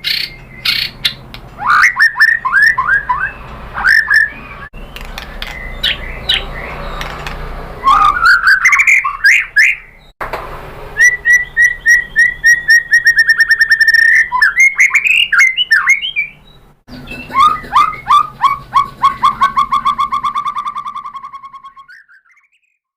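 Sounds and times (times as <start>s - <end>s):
bird singing whistled trills: 0.0s - 7.1s, 7.8s - 10.1s, 11.0s - 22.9s.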